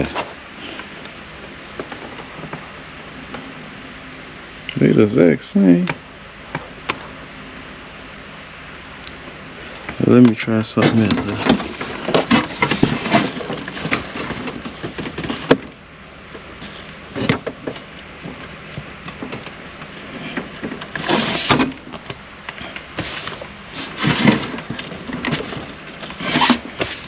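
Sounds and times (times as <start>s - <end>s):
scraping rustles: 9.6s - 27.0s.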